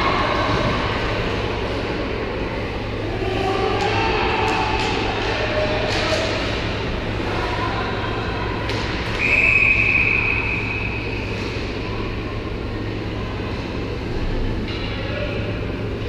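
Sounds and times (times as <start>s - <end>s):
arena ambience hum: 0.0s - 16.0s
referee's whistle: 9.1s - 11.2s.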